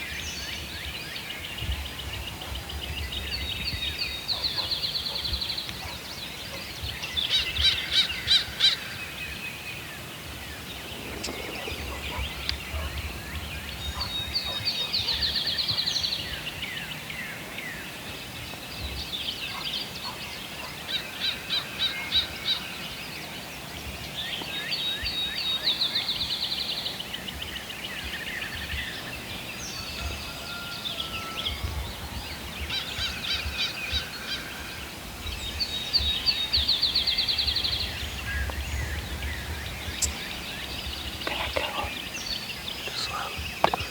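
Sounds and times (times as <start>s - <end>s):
birds trilling: 10.5s - 15.0s, 39.9s - 43.9s.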